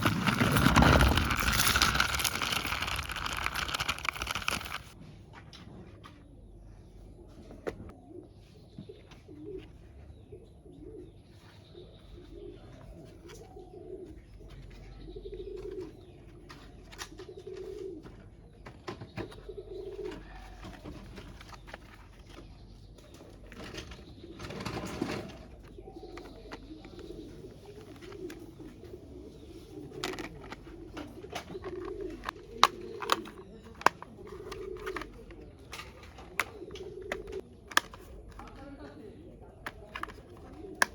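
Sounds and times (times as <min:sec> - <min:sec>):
rustling noise: 0:00.0 - 0:05.0
pigeons cooing: 0:08.0 - 0:21.3, 0:23.6 - 0:38.3, 0:39.2 - 0:40.9.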